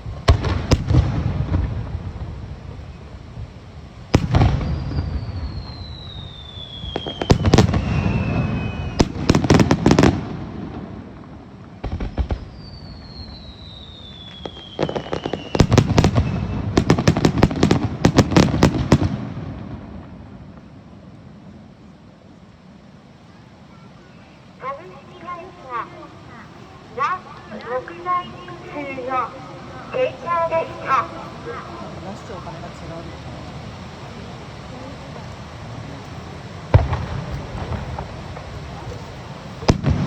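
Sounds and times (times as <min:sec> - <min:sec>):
fireworks bangs: 0:00.0 - 0:21.7, 0:24.6 - 0:34.2, 0:35.1 - 0:40.0
falling whistle: 0:04.6 - 0:09.0, 0:12.5 - 0:15.7.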